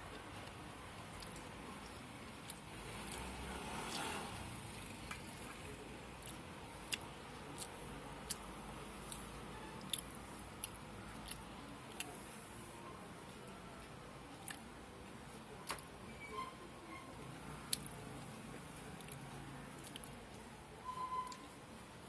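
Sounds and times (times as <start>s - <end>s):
close-up chewing of food: 0.2s - 12.2s, 14.4s - 14.7s, 19.0s - 20.2s.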